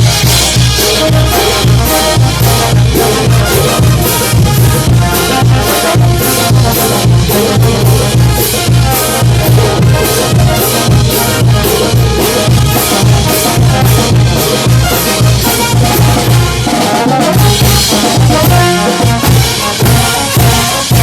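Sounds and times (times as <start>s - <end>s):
brass band playing latin dance: 0.0s - 21.0s
steady drum beat: 0.0s - 21.0s.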